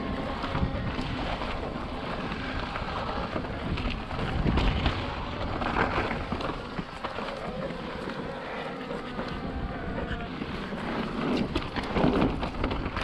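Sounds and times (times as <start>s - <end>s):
bike tyre rumble: 0.0s - 13.0s
wind buffeting microphone: 0.0s - 13.0s
small knocks from bike: 11.2s - 13.0s.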